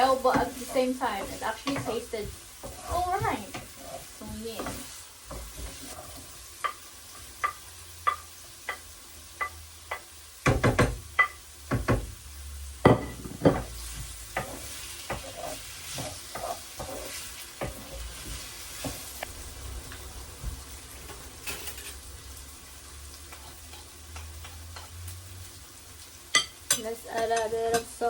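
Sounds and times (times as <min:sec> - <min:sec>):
vegetables sizzling in oil: 0:00.0 - 0:28.0
utensil knocking and scraping pan: 0:00.3 - 0:03.7, 0:12.9 - 0:19.1.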